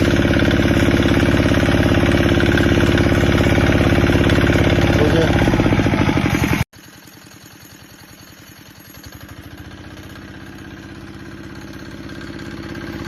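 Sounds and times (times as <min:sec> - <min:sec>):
diesel tractor engine pulsing: 0:00.0 - 0:06.7.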